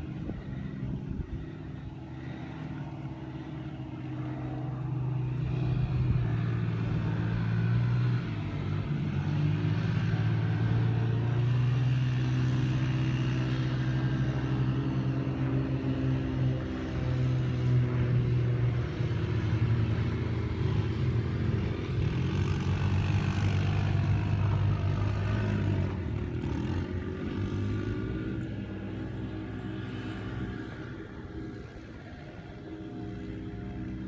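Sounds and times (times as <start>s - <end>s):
dirt bike engine running: 0.0s - 34.0s.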